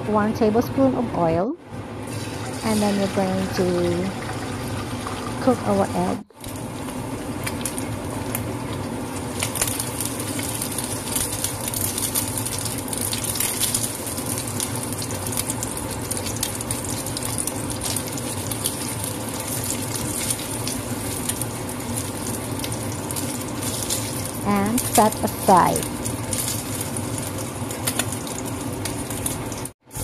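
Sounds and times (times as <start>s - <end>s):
egg sizzling in hot oil: 2.0s - 30.0s
oil crackles and pops: 6.3s - 30.0s.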